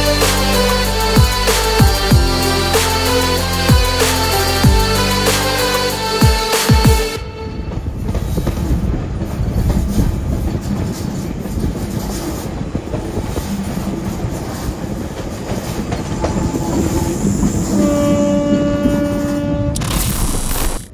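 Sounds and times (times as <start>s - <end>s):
train horn long note: 0.0s - 8.6s, 16.2s - 19.8s
train wheels clacking over rails: 7.7s - 19.6s.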